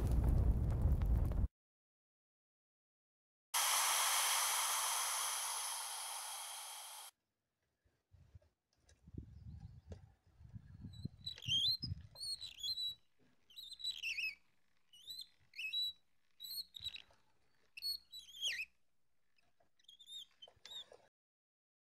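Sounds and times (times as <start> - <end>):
songbird whistling: 10.9 - 14.4, 15.0 - 17.0, 17.8 - 18.7.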